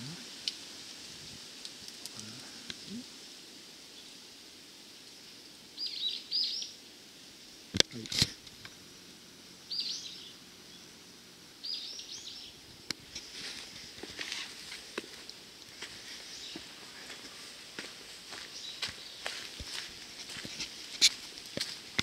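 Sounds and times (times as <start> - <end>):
woodland ambience: 0.0 - 22.0
small bird calling: 5.8 - 6.9, 9.5 - 12.6
light footsteps: 13.0 - 22.0.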